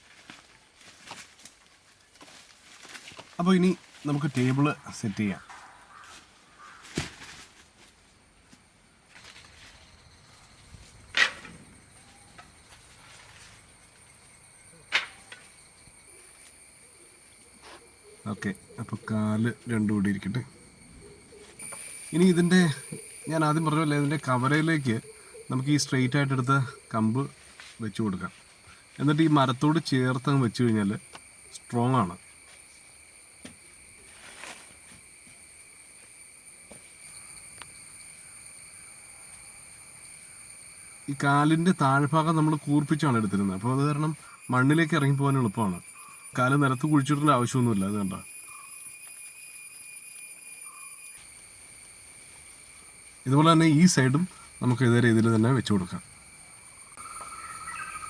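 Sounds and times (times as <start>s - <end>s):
wooden sticks rustling: 0.0s - 4.6s, 10.8s - 14.1s
cicadas droning: 0.0s - 58.0s.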